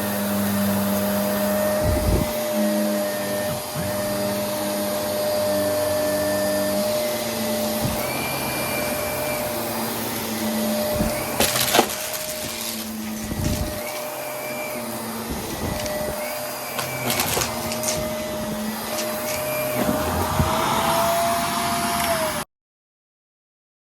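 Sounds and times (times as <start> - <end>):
vacuum cleaner running: 0.0 - 22.4
crackling rattle: 10.8 - 14.3.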